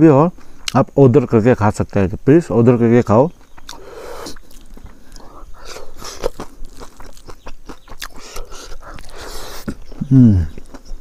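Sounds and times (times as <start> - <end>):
crunchy chewing: 0.3 - 1.0, 2.9 - 11.0.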